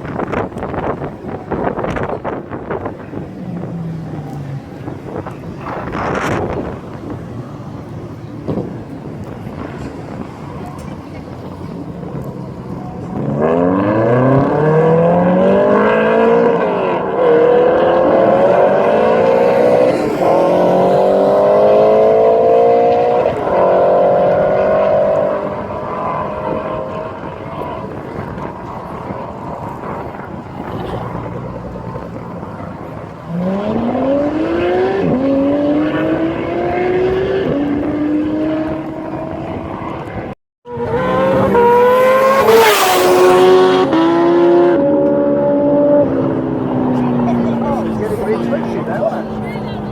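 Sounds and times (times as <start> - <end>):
car engine accelerating through gears: 12.5 - 49.9.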